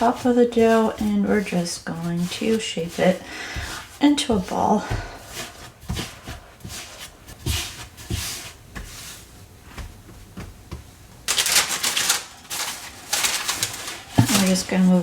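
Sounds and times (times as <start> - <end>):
hands patting and rubbing dough: 0.0 - 15.0
dry rustling: 11.2 - 15.0.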